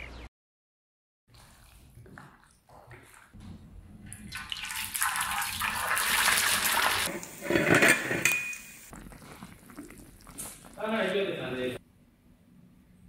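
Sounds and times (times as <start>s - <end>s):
hot oil sizzling: 4.6s - 10.9s.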